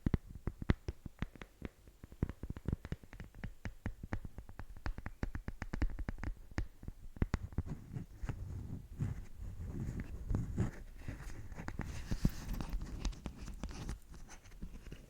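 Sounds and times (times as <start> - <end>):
soft scratching: 7.2 - 15.0.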